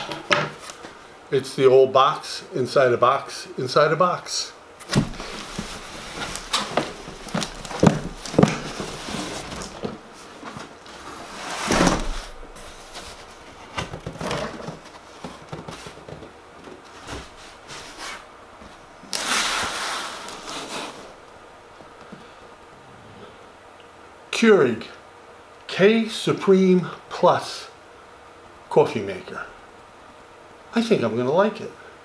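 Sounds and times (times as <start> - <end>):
packing rustling: 4.8 - 18.2
cardboard scraping: 4.8 - 18.3, 19.1 - 21.2.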